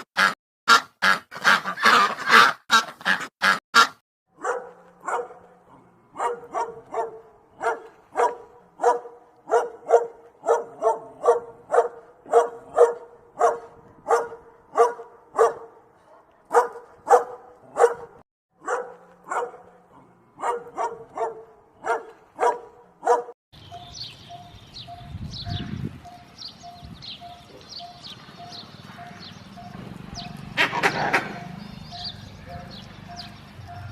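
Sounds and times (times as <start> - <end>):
dog barking: 4.4 - 23.4
high chirps: 23.6 - 30.4, 31.3 - 33.9.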